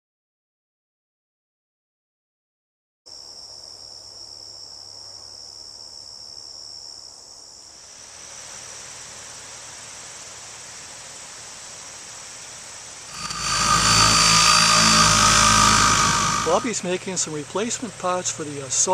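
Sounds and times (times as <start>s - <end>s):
steady hiss: 13.2s - 17.3s.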